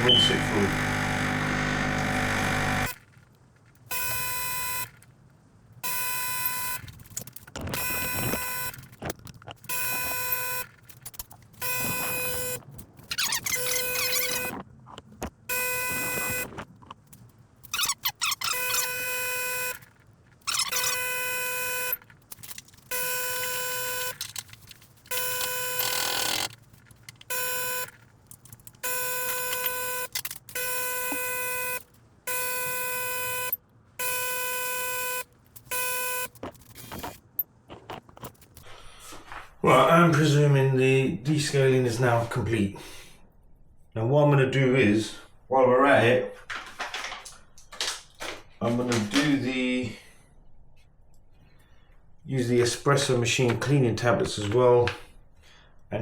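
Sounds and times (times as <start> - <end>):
espresso machine pump buzzing: 0.0 - 3.0.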